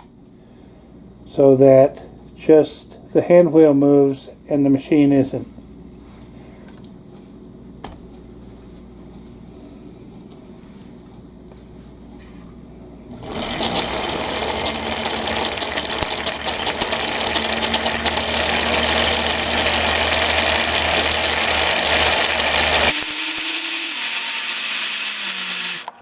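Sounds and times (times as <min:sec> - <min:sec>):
falling motor whine: 0:13.1 - 0:26.0
sewing machine motor humming: 0:13.1 - 0:26.0.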